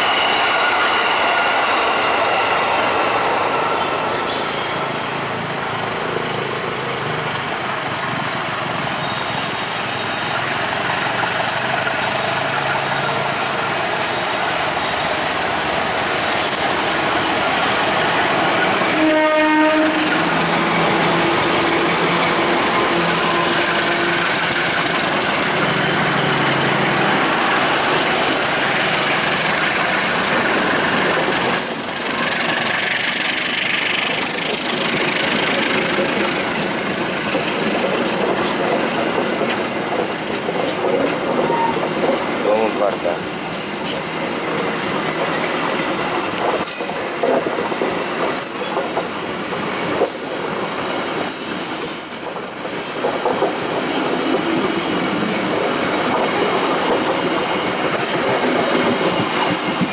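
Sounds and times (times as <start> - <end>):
diesel locomotive engine: 0.0 - 59.9
train horn blast: 18.9 - 20.3.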